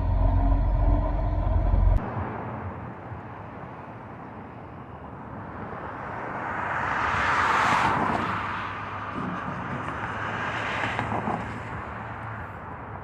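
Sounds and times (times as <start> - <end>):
steady low hum: 0.0 - 2.0
vehicle passing close by: 0.0 - 2.2.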